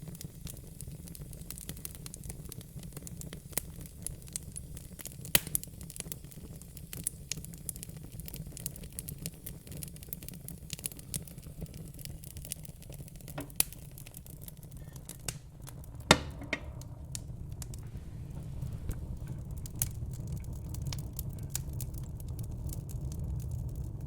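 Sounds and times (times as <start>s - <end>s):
fire crackling: 0.0s - 24.0s.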